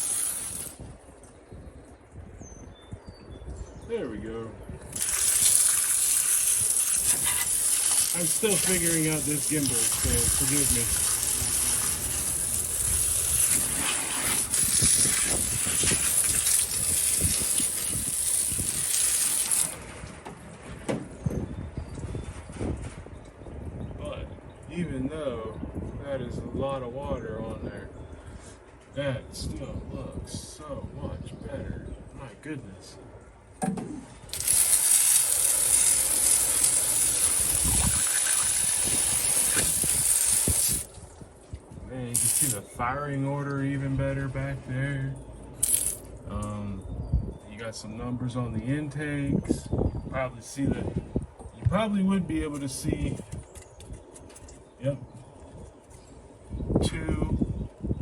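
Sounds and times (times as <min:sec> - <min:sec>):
hose spraying water: 0:00.0 - 0:00.8, 0:04.9 - 0:19.8, 0:34.3 - 0:41.1, 0:42.2 - 0:42.6, 0:45.6 - 0:46.0.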